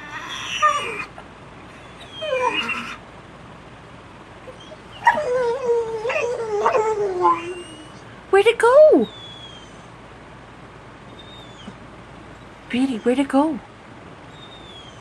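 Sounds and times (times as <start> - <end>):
dog whining: 0.0 - 3.0, 4.4 - 8.1, 8.8 - 10.0, 11.0 - 11.8, 14.3 - 15.0.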